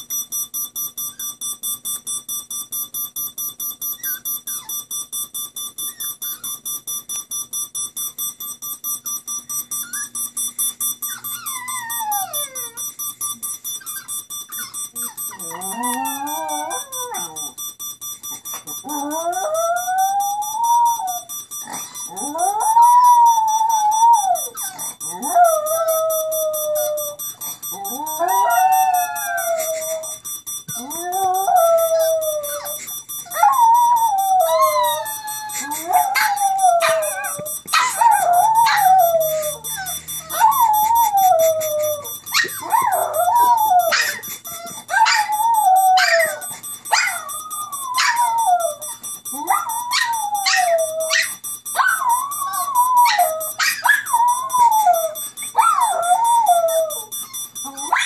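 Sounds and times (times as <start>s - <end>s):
faint steady high tone: 7.8s - 58.0s
dogs howling: 15.0s - 17.5s, 27.8s - 30.2s, 30.8s - 57.1s.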